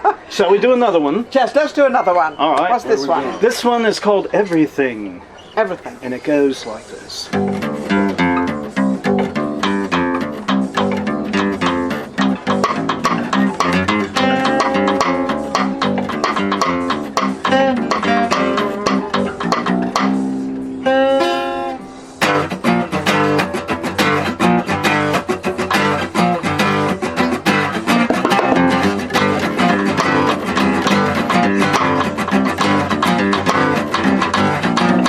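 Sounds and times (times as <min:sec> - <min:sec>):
guitars playing live: 0:07.3 - 0:35.0
bass line: 0:27.9 - 0:34.2.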